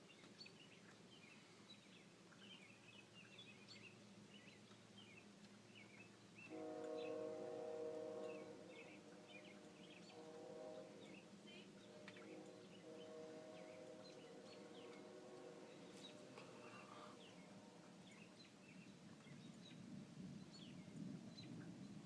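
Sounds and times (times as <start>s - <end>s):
birds chirping: 0.0s - 19.8s
distant train horn: 6.4s - 18.8s.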